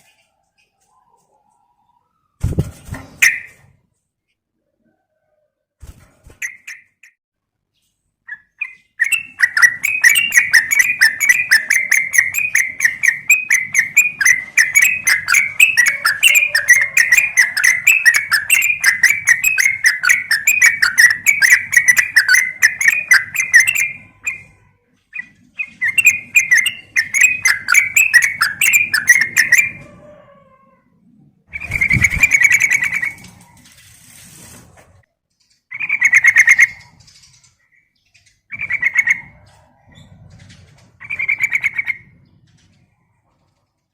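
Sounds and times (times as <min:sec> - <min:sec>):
bird chattering call: 0:08.7 - 0:24.6, 0:25.2 - 0:29.8.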